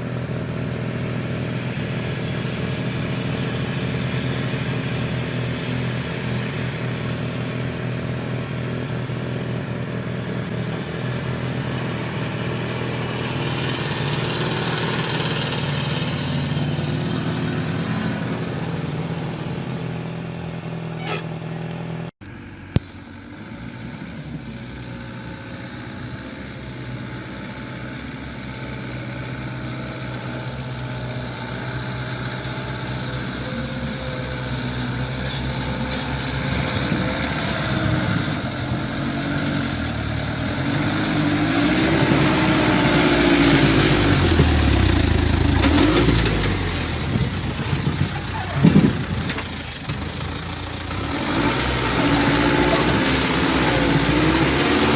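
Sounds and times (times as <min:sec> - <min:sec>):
heavy vehicle engine running: 0:00.0 - 0:54.9
quieter engine running: 0:00.0 - 0:54.9.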